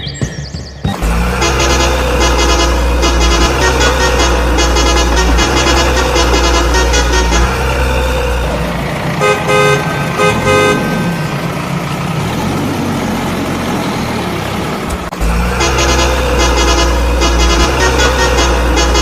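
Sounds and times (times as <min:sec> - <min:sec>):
rhythmic tooting with heavy bass: 0:00.0 - 0:11.6, 0:15.1 - 0:19.0
engine rumble: 0:00.0 - 0:19.0
truck horn toots: 0:00.9 - 0:11.8, 0:15.2 - 0:19.0.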